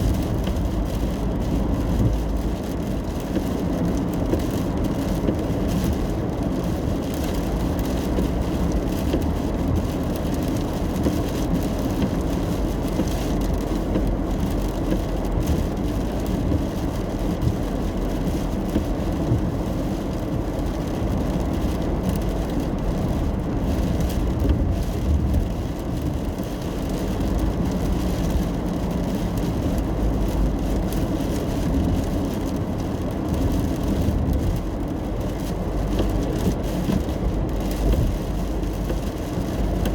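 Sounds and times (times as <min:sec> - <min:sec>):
car road and engine noise: 0:00.0 - 0:39.9
rain pattering on car roof: 0:00.0 - 0:39.9.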